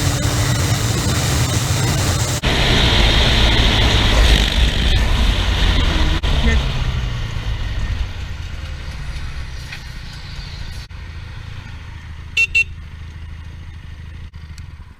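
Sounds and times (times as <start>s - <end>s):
motorcycle engine rumbling: 0.0s - 14.9s
horn toots: 12.4s - 12.8s.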